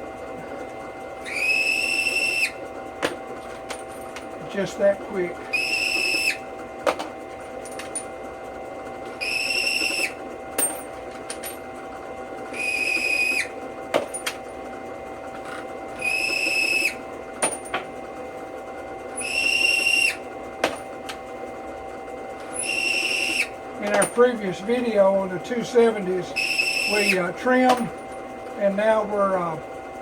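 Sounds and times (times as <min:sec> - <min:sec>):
drill press humming: 0:00.0 - 0:30.0
high squeal of cutter: 0:01.2 - 0:02.6, 0:05.5 - 0:06.4, 0:09.2 - 0:10.2, 0:12.5 - 0:13.5, 0:16.0 - 0:17.0, 0:19.2 - 0:20.2, 0:22.5 - 0:23.6, 0:26.4 - 0:27.3.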